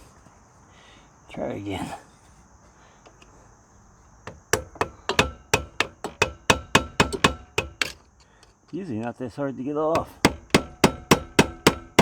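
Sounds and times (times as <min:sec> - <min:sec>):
hammer striking metal: 0:04.5 - 0:08.0, 0:10.0 - 0:12.0.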